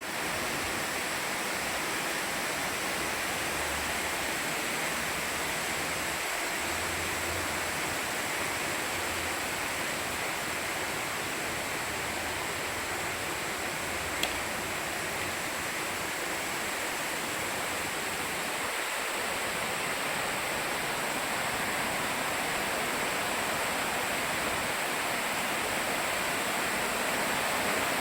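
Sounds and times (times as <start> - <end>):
heavy rain downpour: 0.0 - 28.0
sharp tick: 14.2 - 14.4.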